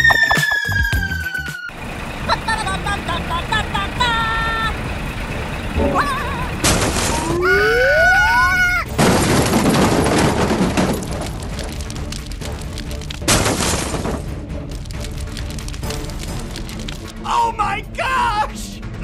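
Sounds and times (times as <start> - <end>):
rising slide whistle glide: 0.0 - 1.8
loud crashing boom: 5.8 - 7.4, 8.9 - 11.9, 13.2 - 14.4.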